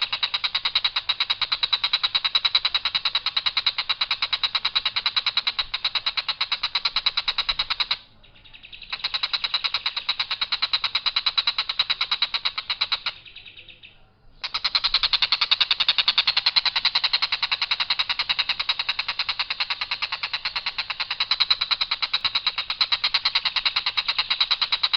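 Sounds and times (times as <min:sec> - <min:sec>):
kingfisher harsh rapid calls: 0:00.0 - 0:13.8, 0:14.4 - 0:24.9.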